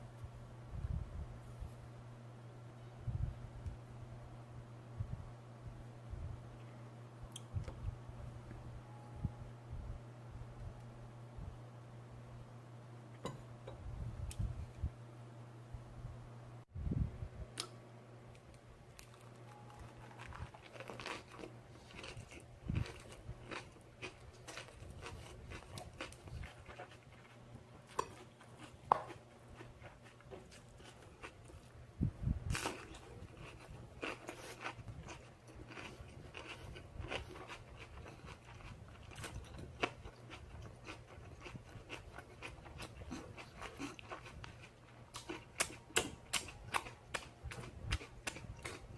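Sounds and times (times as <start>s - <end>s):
faint low hum: 0.0s - 48.9s
person chewing and crunching food: 19.0s - 31.8s, 32.4s - 48.9s.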